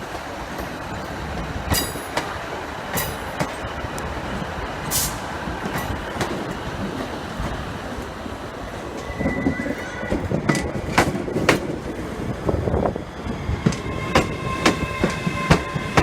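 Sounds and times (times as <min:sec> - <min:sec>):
train rumbling: 0:00.0 - 0:16.0
high wheel squeal: 0:08.8 - 0:10.7, 0:13.2 - 0:16.0.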